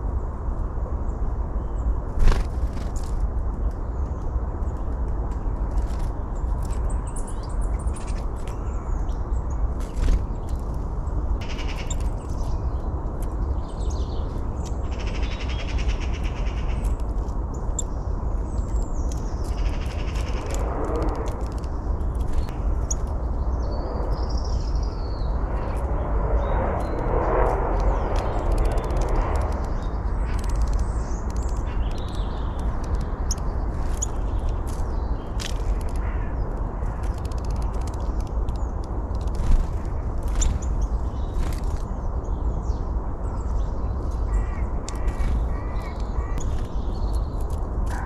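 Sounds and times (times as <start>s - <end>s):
small birds chirping: 1.0s - 48.0s
harsh low bird calls: 11.4s - 38.8s, 39.4s - 48.0s.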